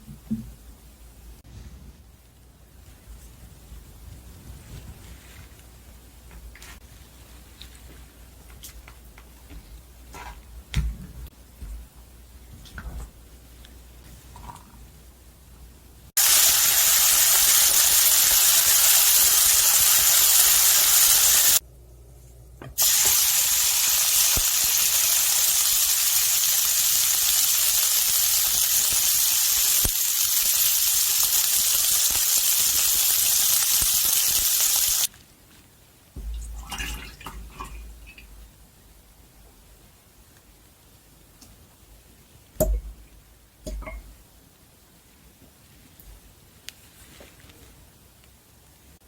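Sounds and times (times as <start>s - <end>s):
steak sizzling in a hot pan: 16.2s - 21.6s, 22.8s - 35.1s.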